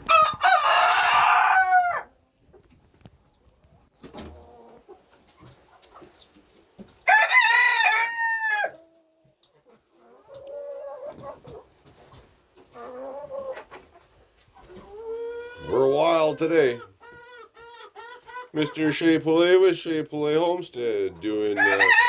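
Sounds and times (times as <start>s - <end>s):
rooster crowing: 0.0s - 2.1s, 7.1s - 8.8s, 21.6s - 22.0s
chickens clucking: 0.0s - 7.0s, 8.7s - 22.0s.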